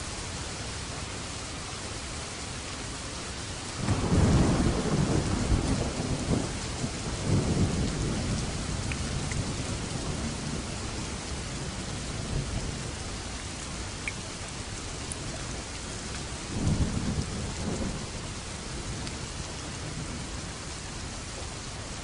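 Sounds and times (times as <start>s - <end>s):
steady rain falling: 0.0s - 22.0s
thunder rumbling: 3.8s - 14.0s, 14.7s - 20.6s.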